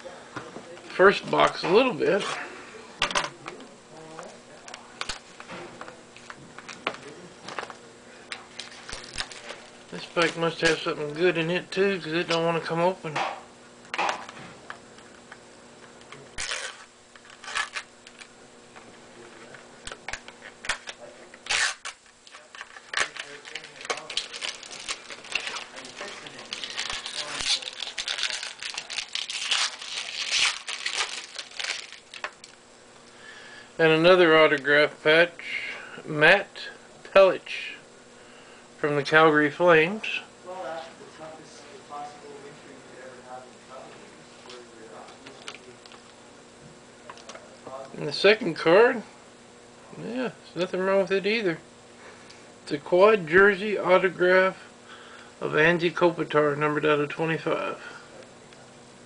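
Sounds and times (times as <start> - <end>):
sharp clicks of packaging: 19.9 - 32.6
packaging rustling: 20.7 - 32.6.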